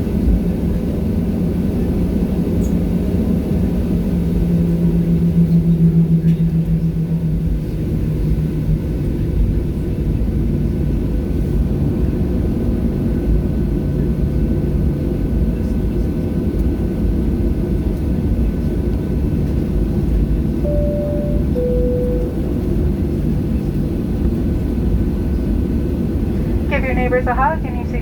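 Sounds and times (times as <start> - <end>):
faint engine whine: 0.0 - 28.0
jet engines rumbling: 20.6 - 22.8, 23.4 - 28.0.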